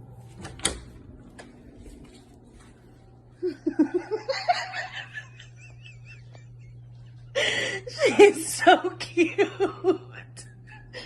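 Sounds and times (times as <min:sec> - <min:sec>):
steady low hum: 0:00.0 - 0:11.0
person laughing: 0:03.4 - 0:11.0.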